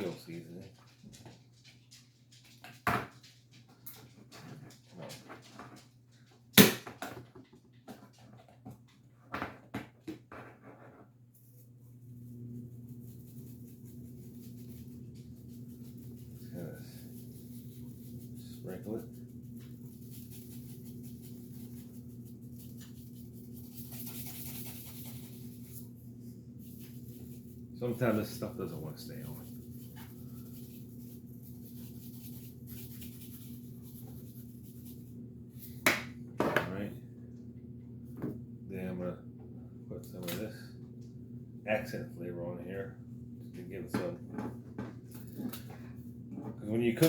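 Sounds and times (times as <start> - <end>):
faint low hum: 0.0 - 47.0
seasoning sprinkling rattle: 11.3 - 35.9.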